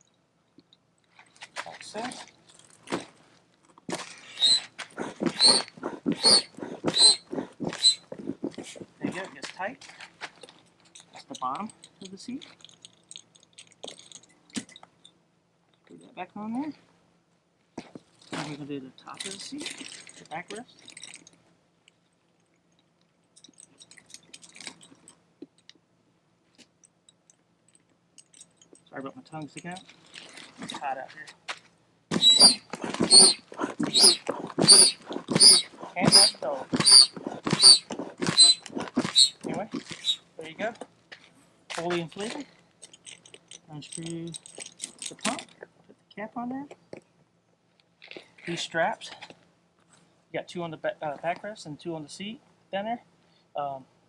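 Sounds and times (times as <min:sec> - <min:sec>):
air pump strokes: 0:04.0 - 0:08.9, 0:32.1 - 0:40.3.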